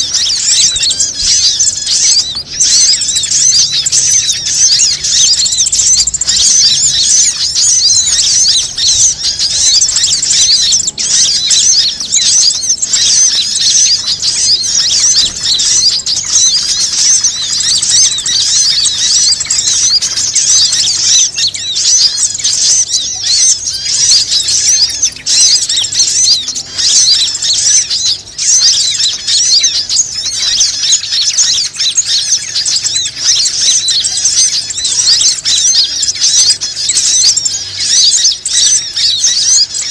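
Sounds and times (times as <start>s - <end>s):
chorus of birds chirping: 0.0s - 39.9s.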